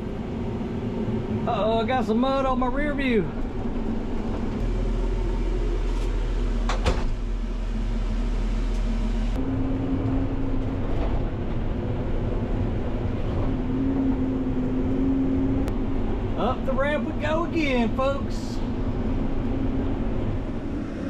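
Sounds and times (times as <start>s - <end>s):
diesel engine running under load: 0.0s - 21.0s
sharp clunk: 6.7s - 7.2s.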